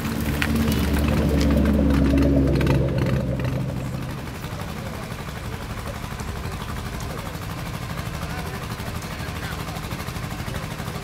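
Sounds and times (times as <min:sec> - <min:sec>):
car driving past: 0:00.0 - 0:05.4.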